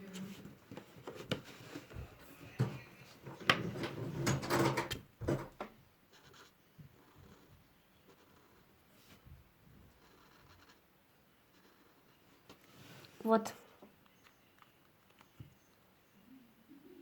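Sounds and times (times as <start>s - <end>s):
clicks and knocks of supplies: 0.4s - 5.8s.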